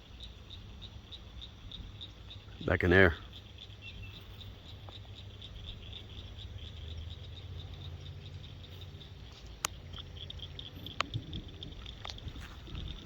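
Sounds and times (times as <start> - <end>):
frogs calling: 0.0 - 13.0.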